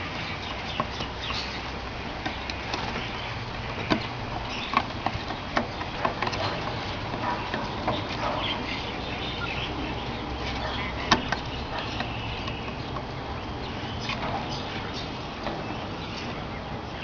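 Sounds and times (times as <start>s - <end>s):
steady low hum: 0.0s - 17.0s
soft bird chirps: 0.1s - 17.0s.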